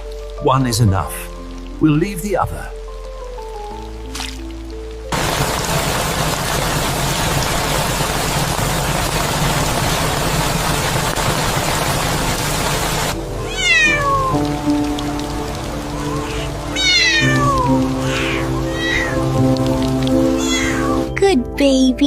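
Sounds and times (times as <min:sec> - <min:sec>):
soft background music: 0:00.0 - 0:05.2, 0:13.1 - 0:22.0
loud steady hiss: 0:05.1 - 0:13.4
kitten meowing: 0:13.4 - 0:14.5, 0:16.0 - 0:19.4, 0:20.2 - 0:21.1.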